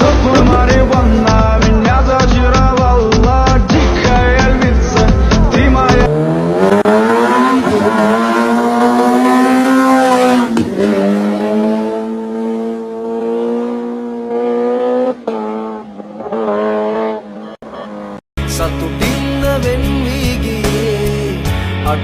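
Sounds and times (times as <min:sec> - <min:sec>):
motorbike engine revving: 0:03.8 - 0:18.2.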